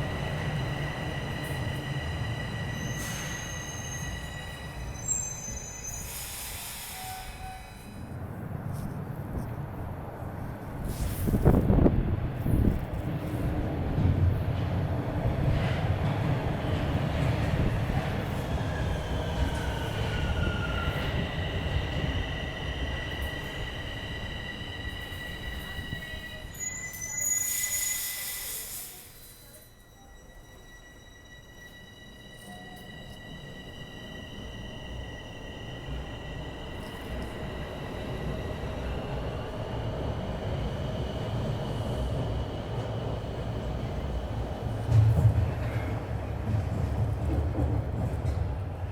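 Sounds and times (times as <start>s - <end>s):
subway train rumbling: 0.0s - 48.9s
train wheel squeals: 0.5s - 8.2s, 17.7s - 39.2s.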